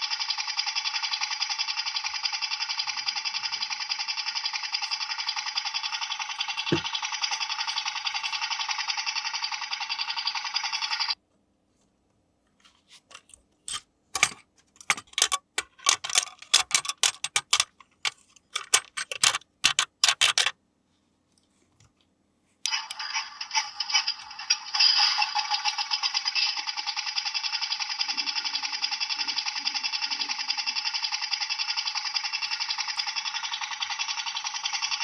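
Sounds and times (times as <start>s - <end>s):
small toy motor buzzing: 0.0s - 11.2s, 22.7s - 35.0s
plastic toy parts clicking: 13.1s - 20.5s.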